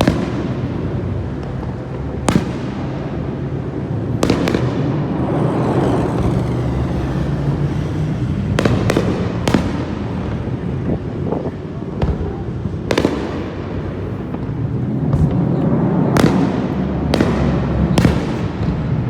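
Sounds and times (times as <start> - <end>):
fireworks bangs: 0.0 - 19.0
steady noise: 3.0 - 11.1.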